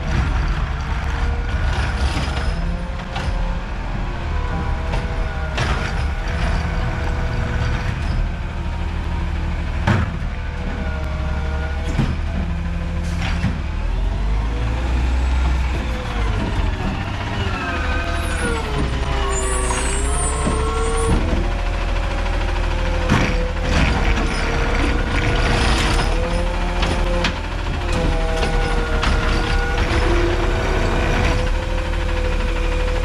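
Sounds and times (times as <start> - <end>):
garbage truck engine whining: 0.0 - 33.0
sharp knocks and clanks: 9.7 - 10.8, 18.4 - 32.9.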